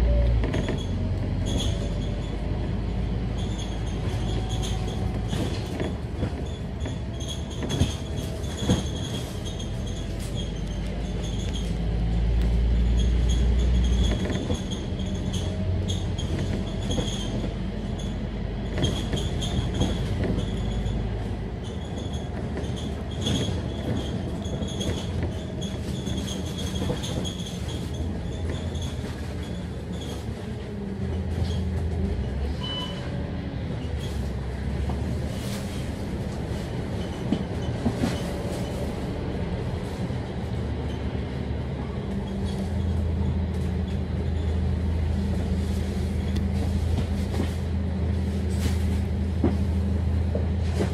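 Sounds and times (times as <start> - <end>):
bus engine and road rumble: 0.0 - 50.9
body rattles and knocks: 3.3 - 11.8, 13.4 - 30.6.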